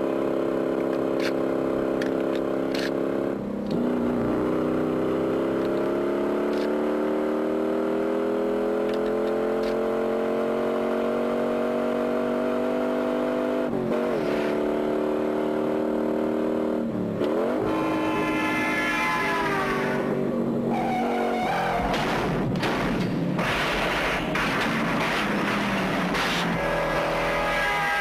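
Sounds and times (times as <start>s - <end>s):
car engine running under load: 16.8s - 27.8s.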